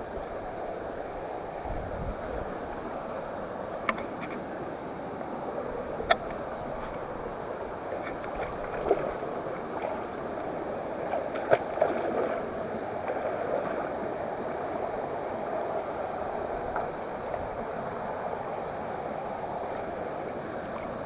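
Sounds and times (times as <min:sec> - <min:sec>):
stream water flowing: 0:00.0 - 0:21.0.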